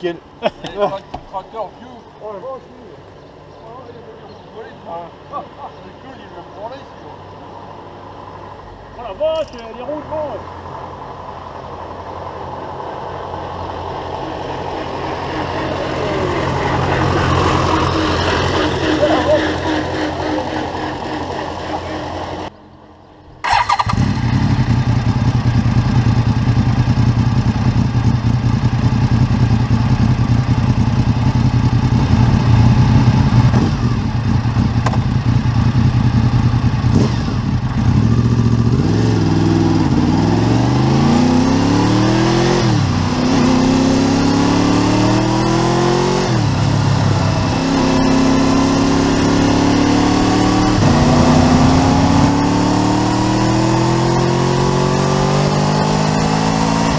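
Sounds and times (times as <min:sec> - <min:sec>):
motorcycle engine revving: 0:13.1 - 0:22.5, 0:23.4 - 0:56.9.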